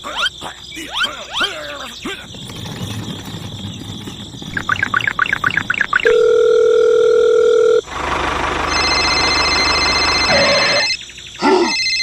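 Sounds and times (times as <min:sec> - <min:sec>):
quick chirps: 0:00.0 - 0:06.2
electronic dial tone: 0:04.6 - 0:07.9, 0:08.7 - 0:11.0.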